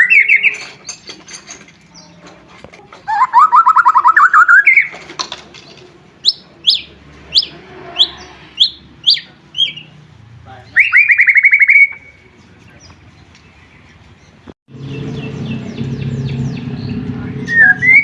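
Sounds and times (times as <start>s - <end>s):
bird singing trills and high notes: 0.0s - 1.2s, 3.0s - 5.0s, 6.2s - 10.0s, 10.7s - 18.0s.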